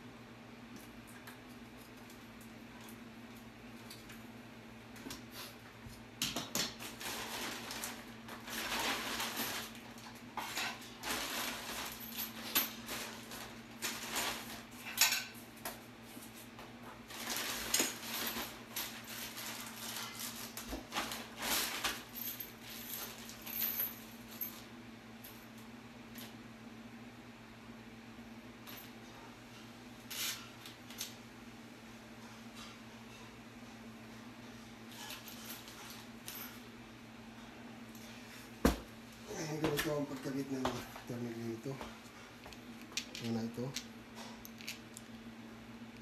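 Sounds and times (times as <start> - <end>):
metal tools clinking and rattling: 6.5 - 15.4.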